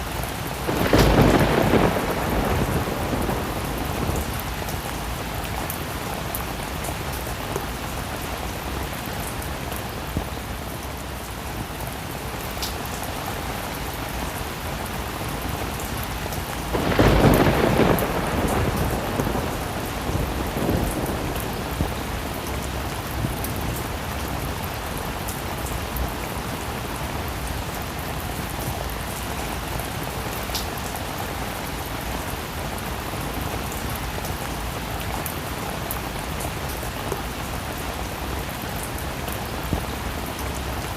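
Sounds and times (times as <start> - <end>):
heavy rain falling: 0.0 - 40.9
thunder rumble: 0.3 - 8.3, 15.0 - 28.2.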